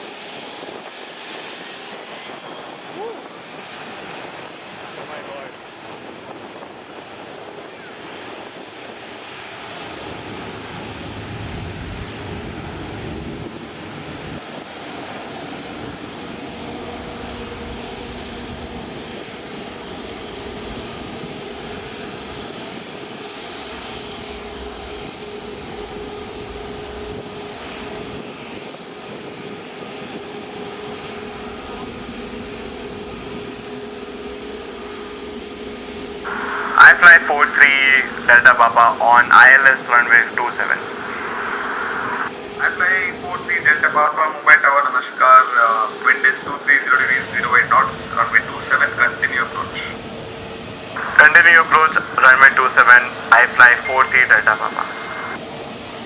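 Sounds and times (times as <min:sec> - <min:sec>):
jet engines running with whine: 0:00.0 - 0:56.0.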